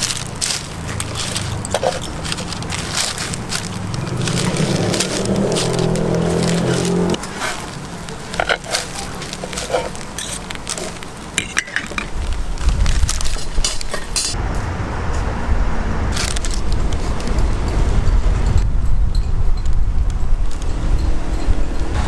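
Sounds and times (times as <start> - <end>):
utensils and dishes clinking: 0.0 - 14.4.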